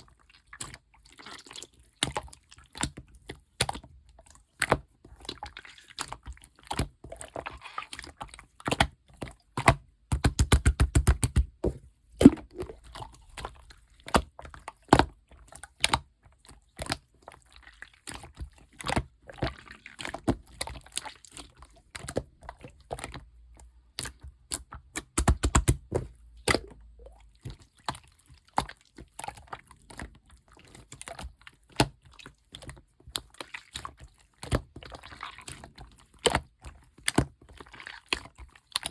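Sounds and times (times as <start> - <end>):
rapid popping of slime: 9.6 - 16.1, 24.0 - 26.8
slime squished by hand: 9.6 - 16.1, 16.7 - 32.2.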